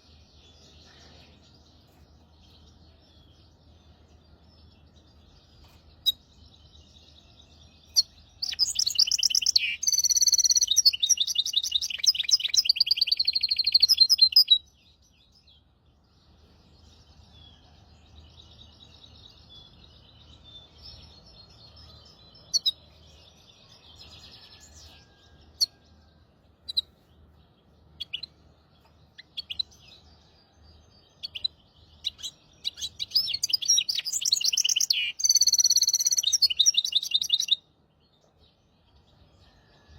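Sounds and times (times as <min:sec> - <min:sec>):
finch song trills and warbles: 0:00.0 - 0:39.9
soft bird twittering and chirps: 0:00.0 - 0:39.9.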